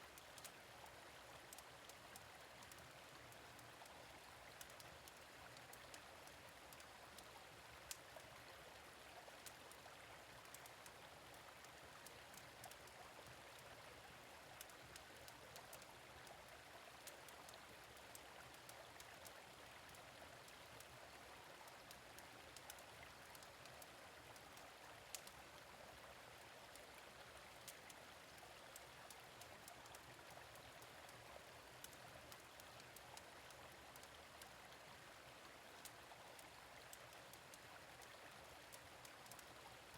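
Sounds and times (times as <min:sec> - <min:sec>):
gentle stream running: 0:00.0 - 0:39.9.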